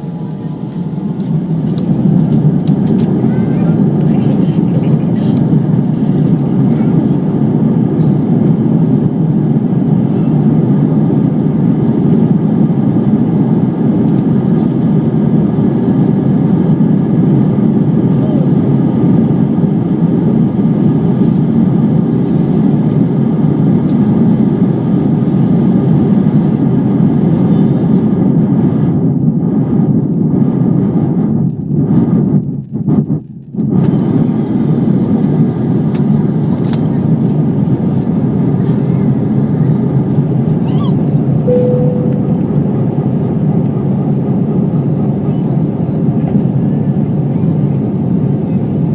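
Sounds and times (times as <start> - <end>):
airliner cabin rumble: 0.0 - 48.9
short tone: 41.5 - 43.0.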